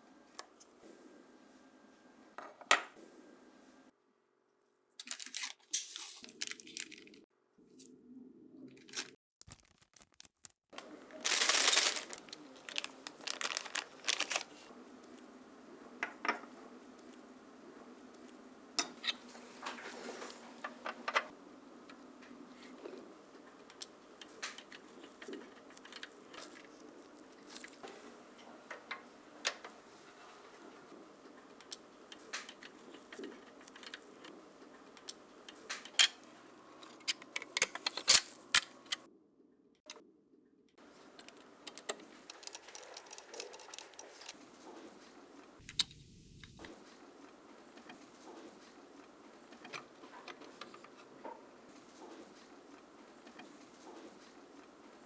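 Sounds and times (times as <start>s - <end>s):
rustling tearing noise: 5.0s - 7.2s, 8.8s - 14.7s
small parts clicking and tapping: 41.2s - 44.4s.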